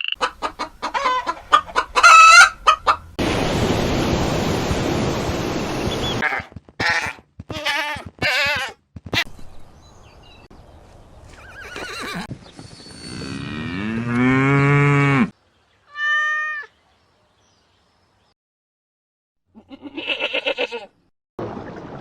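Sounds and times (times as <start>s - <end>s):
cow mooing: 13.1s - 15.3s.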